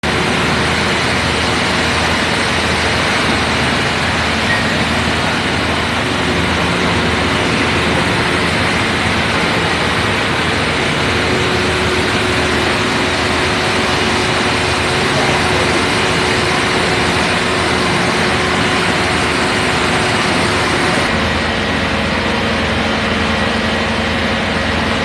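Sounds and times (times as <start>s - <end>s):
fire truck engine idling: 0.0s - 25.0s.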